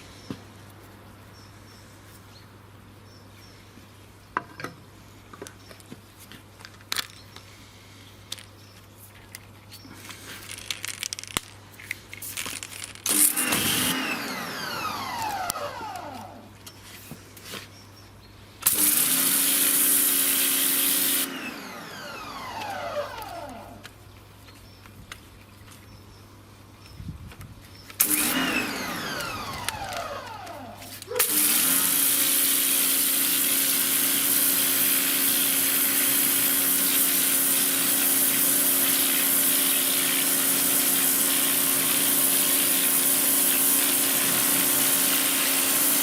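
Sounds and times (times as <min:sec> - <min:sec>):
water spray hissing: 0:12.2 - 0:14.0, 0:18.7 - 0:21.3, 0:30.7 - 0:46.0
pressure washer motor and pump: 0:13.0 - 0:16.6, 0:18.6 - 0:24.0, 0:28.0 - 0:46.0.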